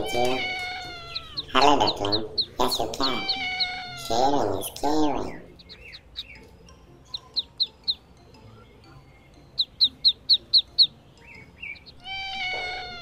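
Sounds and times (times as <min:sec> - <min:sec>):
steady duckling call: 0:00.0 - 0:04.2
ducklings peeping: 0:00.0 - 0:13.0.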